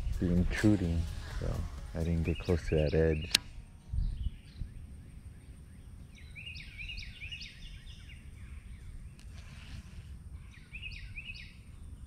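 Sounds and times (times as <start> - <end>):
low rumble: 0.0 - 6.1
songbird chirping: 0.0 - 12.0.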